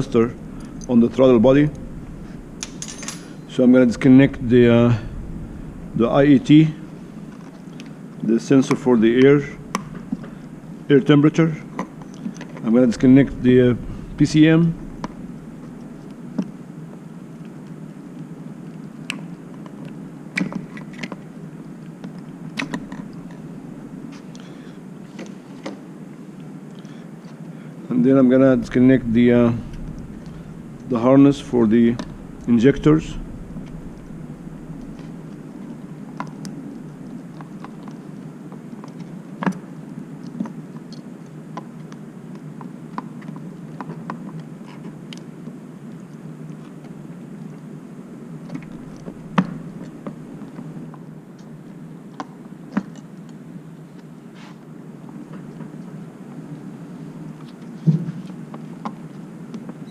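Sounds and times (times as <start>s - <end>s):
small rattles: 0.0s - 7.6s
steady low hum: 0.0s - 43.6s, 44.4s - 57.8s.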